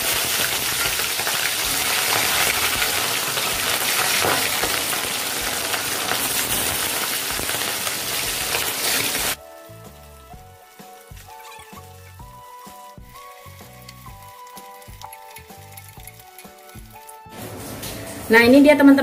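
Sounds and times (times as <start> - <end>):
chicken sizzling in hot oil: 0.0 - 18.3.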